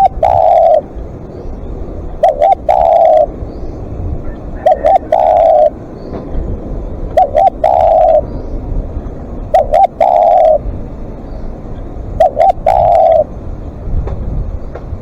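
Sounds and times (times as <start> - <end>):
dove cooing: 0.0 - 1.1, 2.0 - 3.4, 4.2 - 5.9, 7.1 - 8.5, 9.4 - 10.8, 12.0 - 13.4.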